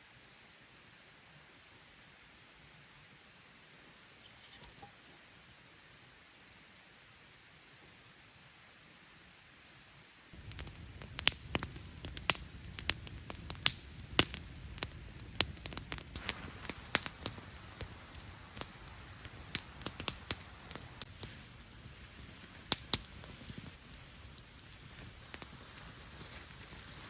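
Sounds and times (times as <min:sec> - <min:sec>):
campfire crackling: 0:08.7 - 0:27.0.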